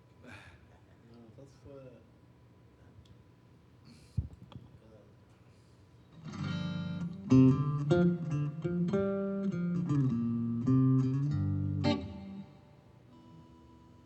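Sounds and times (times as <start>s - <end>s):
guitar playing blues: 6.2s - 14.0s
bass guitar: 6.3s - 12.6s.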